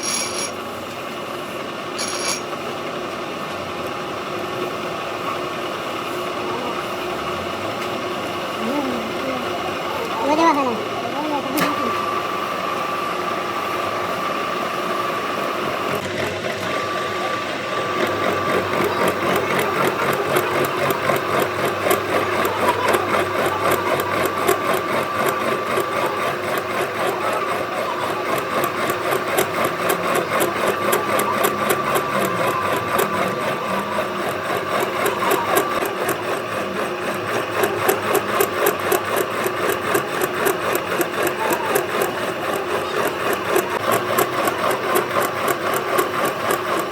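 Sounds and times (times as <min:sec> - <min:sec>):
machine tool whine: 0:00.0 - 0:46.9
fast ticking clatter: 0:15.5 - 0:46.9.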